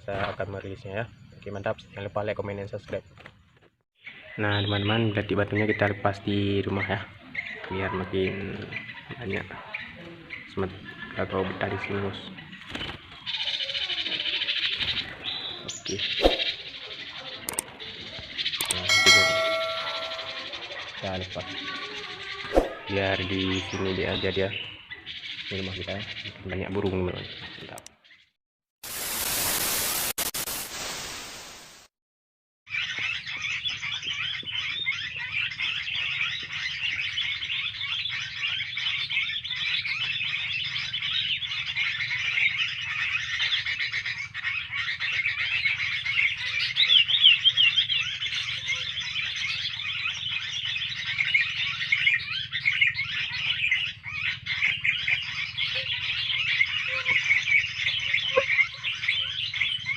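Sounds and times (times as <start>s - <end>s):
small birds chirping: 0.0s - 28.4s, 32.7s - 59.9s
loud hiss: 28.8s - 31.9s.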